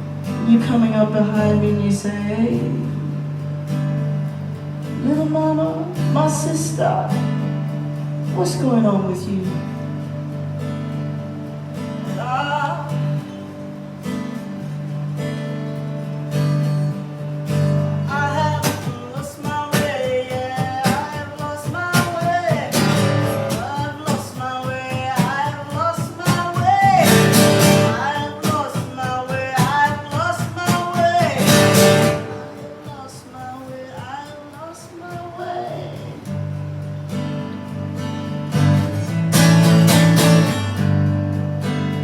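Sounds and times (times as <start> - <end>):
strummed acoustic guitar: 0.0 - 42.0
person singing wordless melody: 5.0 - 7.4, 12.0 - 13.2, 18.0 - 36.4.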